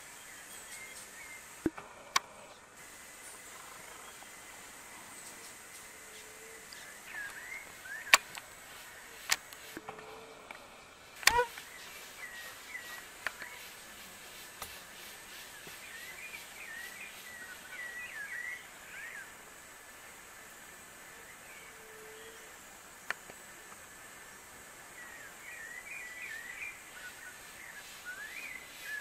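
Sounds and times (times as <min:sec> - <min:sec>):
small birds chirping: 0:03.2 - 0:09.7, 0:11.2 - 0:19.4, 0:24.9 - 0:29.0.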